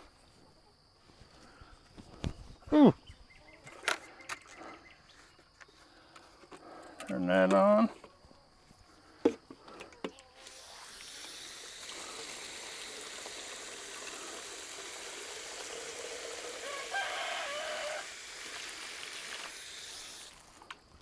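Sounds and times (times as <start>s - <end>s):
water hissing from hose: 10.4s - 20.8s.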